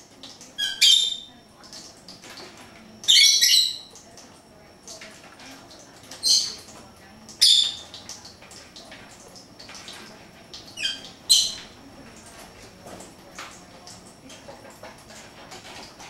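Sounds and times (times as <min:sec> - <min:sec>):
birds loud high calls: 0:00.6 - 0:01.3, 0:03.0 - 0:03.9, 0:10.8 - 0:11.7.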